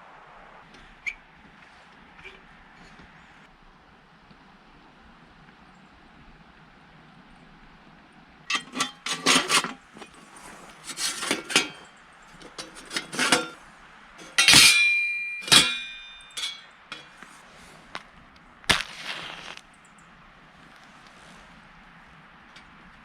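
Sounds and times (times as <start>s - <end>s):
ringing metal clanks: 8.5s - 10.2s, 10.8s - 13.6s, 14.2s - 17.2s
metal gear clinking: 14.2s - 17.1s.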